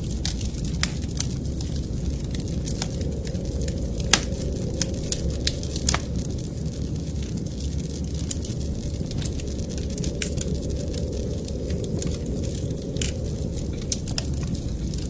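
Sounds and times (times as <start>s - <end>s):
low steady rumble: 0.0s - 15.0s
wood fire crackling and popping: 0.0s - 15.0s.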